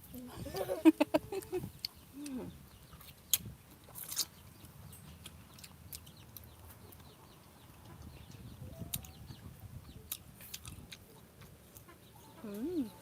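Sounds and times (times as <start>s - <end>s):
chickens clucking: 10.8s - 13.0s.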